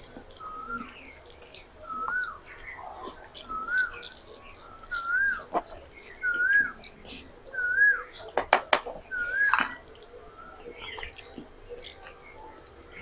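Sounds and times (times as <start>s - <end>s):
eating by hand clicks and squelches: 0.0s - 13.0s
bird whistling: 1.8s - 6.9s, 7.5s - 8.3s, 9.1s - 11.2s.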